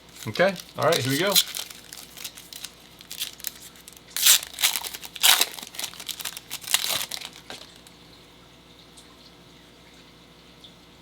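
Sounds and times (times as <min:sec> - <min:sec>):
plastic wrapping crinkling and tearing: 0:00.0 - 0:08.0.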